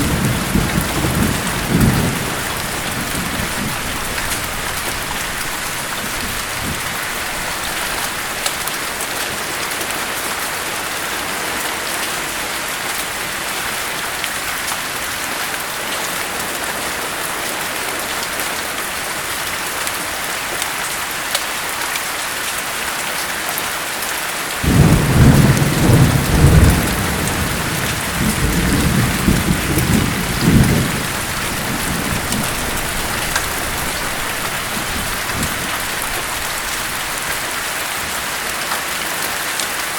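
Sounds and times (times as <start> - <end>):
thunder rumbling: 0.0 - 8.7, 24.6 - 37.4
rain hissing: 0.0 - 11.3, 24.6 - 39.4.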